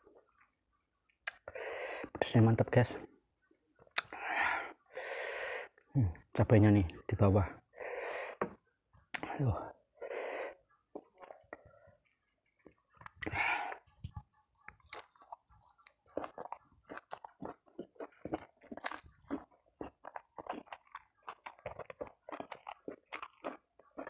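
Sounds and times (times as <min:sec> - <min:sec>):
chewing with lip smacks: 0:10.6 - 0:24.0.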